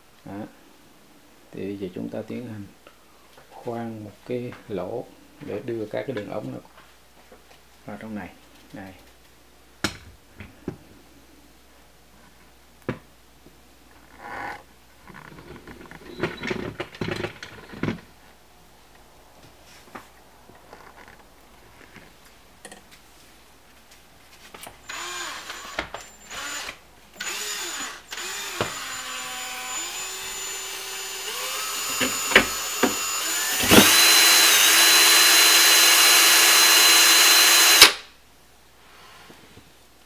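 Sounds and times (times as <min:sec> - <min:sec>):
power drill boring through wood: 0:24.8 - 0:38.0.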